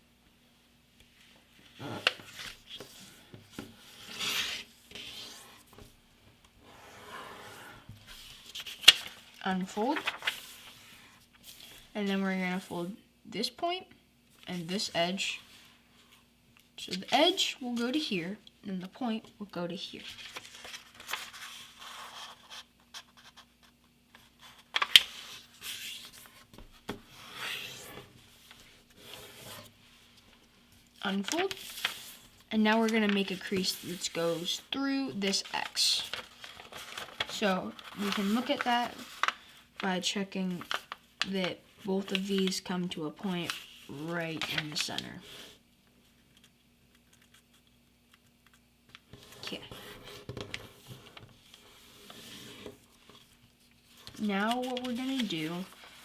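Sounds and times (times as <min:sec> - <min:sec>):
paper rustling: 0:08.0 - 0:11.9, 0:20.0 - 0:45.6, 0:46.2 - 0:56.0
paper fold being creased: 0:10.0 - 0:11.8, 0:20.0 - 0:23.5, 0:31.2 - 0:34.6, 0:35.3 - 0:39.6, 0:40.6 - 0:41.0.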